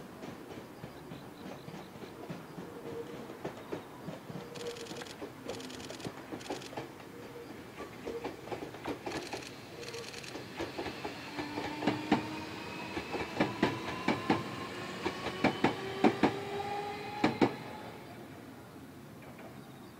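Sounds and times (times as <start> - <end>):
train wheels clacking over rail joints: 0.0 - 12.3, 13.0 - 16.4.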